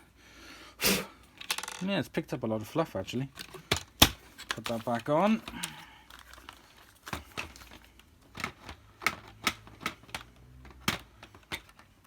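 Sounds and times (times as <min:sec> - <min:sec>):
plastic clicks and knocks: 0:03.4 - 0:12.0.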